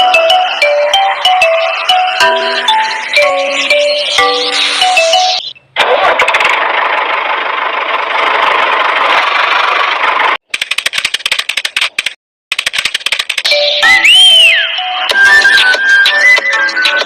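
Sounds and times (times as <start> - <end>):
engine running: 0.2 - 10.4
stuttering clicks: 10.5 - 13.5.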